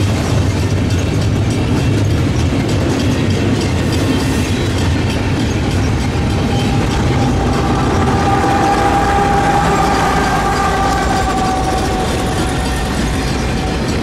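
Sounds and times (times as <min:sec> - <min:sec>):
diesel locomotive passing: 0:00.0 - 0:14.0
freight train wheels clattering: 0:00.0 - 0:14.0
steady high tone: 0:04.4 - 0:14.0.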